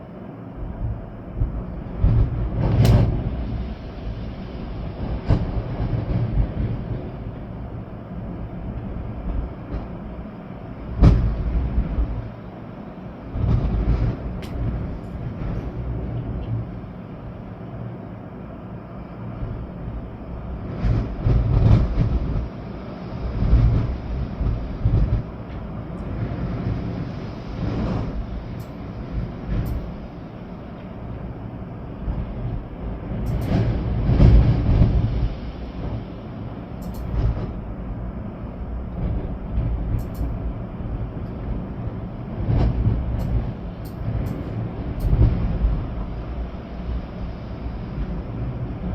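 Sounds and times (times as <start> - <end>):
rain: 0.0 - 48.9
wind buffeting microphone: 0.1 - 48.9
faint high ticks: 36.8 - 37.1, 40.0 - 40.4.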